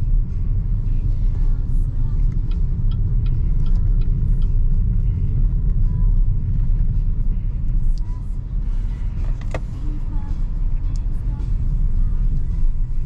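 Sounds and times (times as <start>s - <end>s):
road and tyre rumble inside car: 0.0s - 13.0s
faint light ticks: 1.7s - 7.1s, 7.7s - 8.2s, 9.2s - 11.8s.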